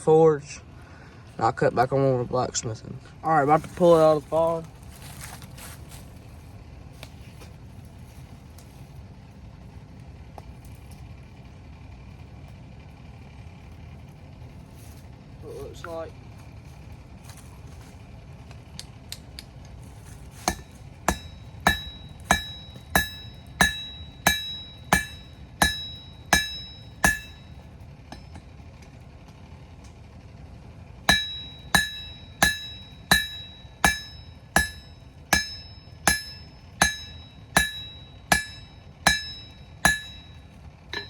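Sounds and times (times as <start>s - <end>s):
hammer striking metal on anvil: 20.4s - 28.5s, 31.1s - 41.0s.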